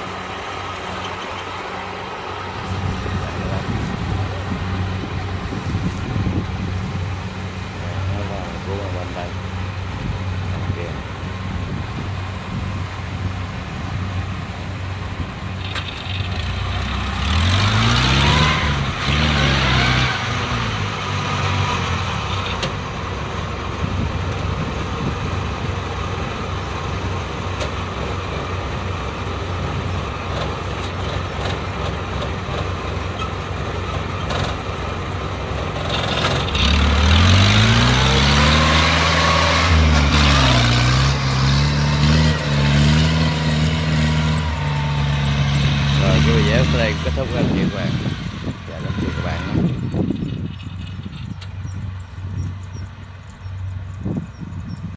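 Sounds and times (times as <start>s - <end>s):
diesel engine revving: 0.0s - 54.9s.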